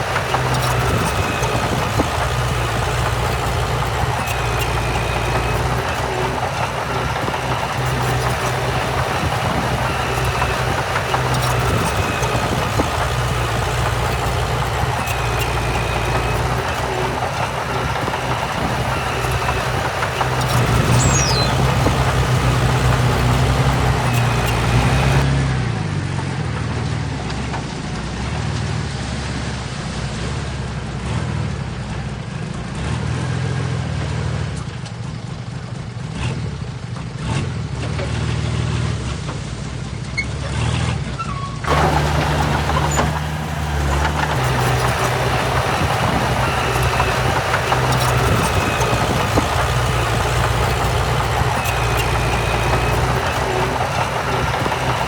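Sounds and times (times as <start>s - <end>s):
heavy machinery diesel engines: 0.0s - 30.0s, 41.6s - 55.0s.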